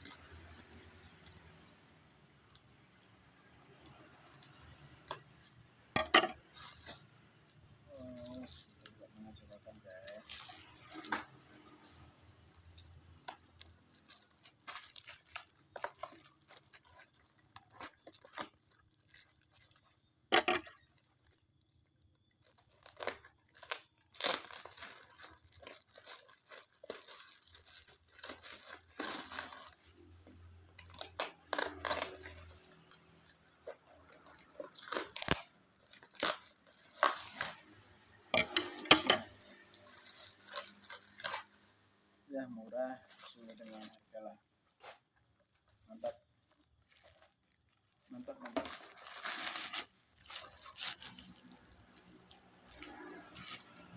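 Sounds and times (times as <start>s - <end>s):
plastic packaging crinkling: 0.0s - 53.9s.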